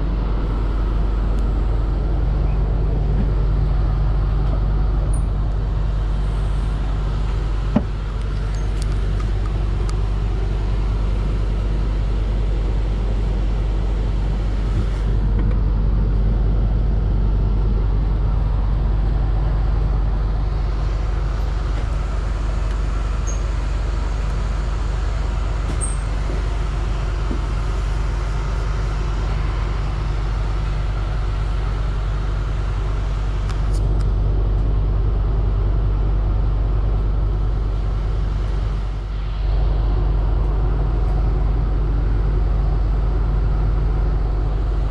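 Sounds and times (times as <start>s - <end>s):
vehicle mechanical hum: 0.0s - 44.9s.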